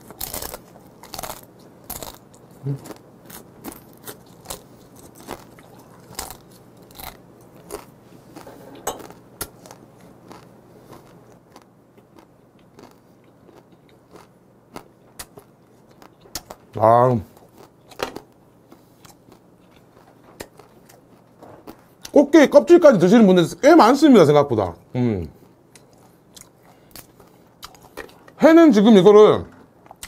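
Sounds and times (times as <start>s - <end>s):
crab shell crunching while chewing: 0.0s - 22.2s, 25.6s - 28.4s.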